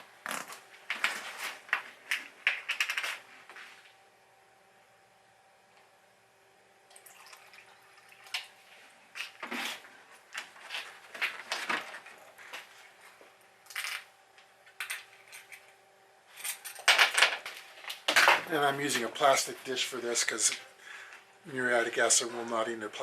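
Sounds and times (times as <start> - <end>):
liquid splashing and trickling: 6.9 - 8.6.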